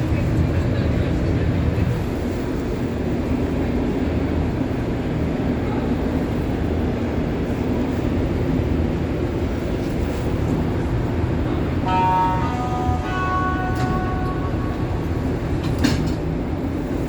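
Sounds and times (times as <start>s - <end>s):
metro car rumble: 0.0s - 17.0s.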